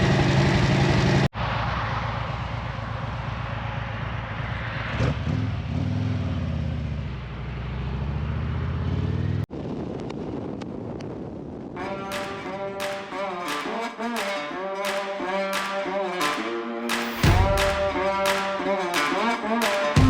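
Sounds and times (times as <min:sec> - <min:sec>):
motorcycle engine: 0:00.0 - 0:09.5
wind and road noise: 0:00.0 - 0:12.8.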